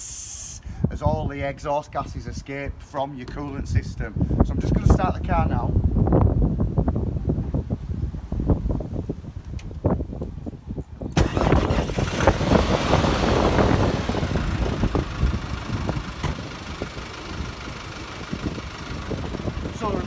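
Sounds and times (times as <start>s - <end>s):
diesel engine starting and running: 11.1s - 20.0s.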